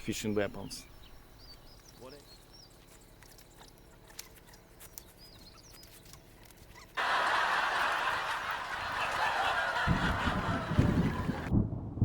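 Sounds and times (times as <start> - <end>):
bird chirp: 0.0 - 7.0
low thunder rumbling: 9.8 - 12.0.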